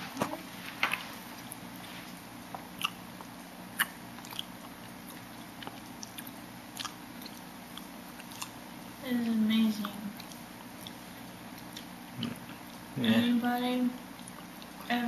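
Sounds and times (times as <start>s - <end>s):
faint low hum: 0.0s - 15.0s
person chewing: 1.3s - 8.6s, 9.8s - 12.9s, 14.1s - 14.9s.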